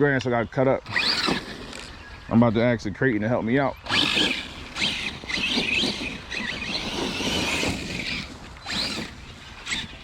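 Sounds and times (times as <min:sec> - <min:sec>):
electric motor whining: 0:00.8 - 0:02.2, 0:03.8 - 0:10.0
tyres churning through wet grass: 0:03.9 - 0:10.0.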